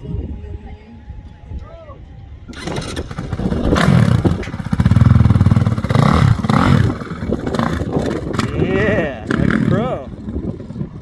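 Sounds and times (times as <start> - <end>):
dirt bike engine revving: 2.5 - 11.0.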